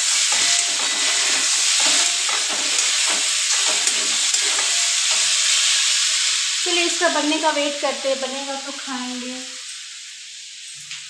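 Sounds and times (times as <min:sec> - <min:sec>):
metal spatula scraping pan: 0:00.0 - 0:06.1
food sizzling in pan: 0:00.0 - 0:11.0.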